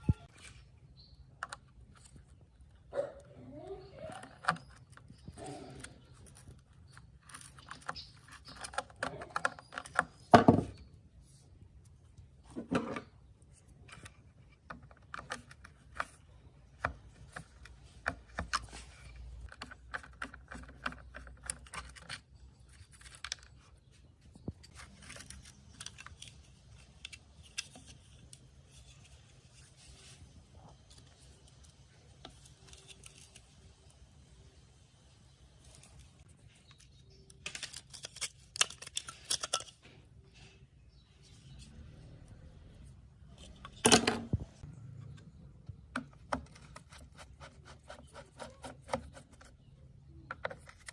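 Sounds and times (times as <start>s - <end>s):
small parts and tools clicking: 3.9s - 10.8s, 13.4s - 29.7s, 35.2s - 40.0s.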